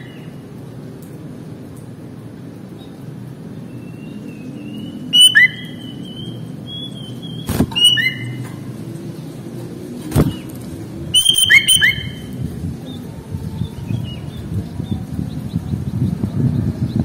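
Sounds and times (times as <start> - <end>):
bird singing whistles: 3.8 - 8.4, 11.1 - 12.3.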